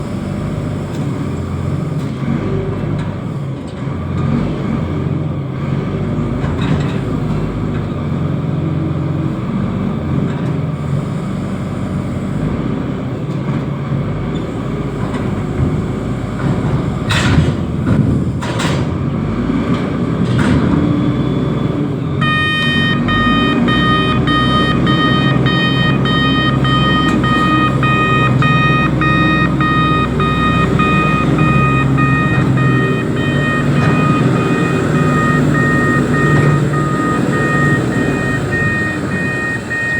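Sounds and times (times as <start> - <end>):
heavy diesel engine running: 0.0 - 39.9
warning beeper beeping: 22.2 - 39.9.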